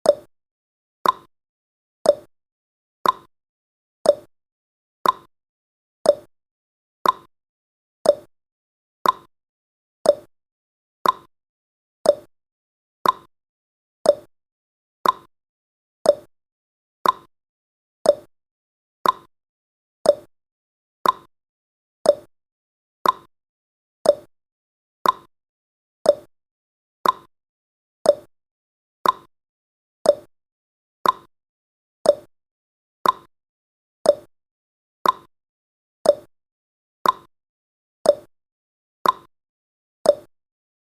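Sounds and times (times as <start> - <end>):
timer ticking: 0.0 - 0.3, 1.0 - 1.3, 2.0 - 2.3, 3.0 - 3.3, 4.0 - 4.3, 5.0 - 5.3, 6.0 - 6.3, 7.0 - 7.3, 8.0 - 8.3, 9.0 - 9.3, 10.0 - 10.3, 11.0 - 11.3, 12.0 - 12.3, 13.0 - 13.3, 14.0 - 14.3, 15.0 - 15.3, 16.0 - 16.3, 17.0 - 17.3, 18.0 - 18.3, 19.0 - 19.3, 20.0 - 20.3, 21.0 - 21.3, 22.0 - 22.3, 23.0 - 23.3, 24.0 - 24.3, 25.0 - 25.3, 26.0 - 26.3, 27.0 - 27.3, 28.0 - 28.3, 29.0 - 29.3, 30.0 - 30.3, 31.0 - 31.3, 32.0 - 32.3, 33.0 - 33.3, 34.0 - 34.3, 35.0 - 35.3, 36.0 - 36.3, 37.0 - 37.3, 38.0 - 38.3, 39.0 - 39.3, 40.1 - 40.3.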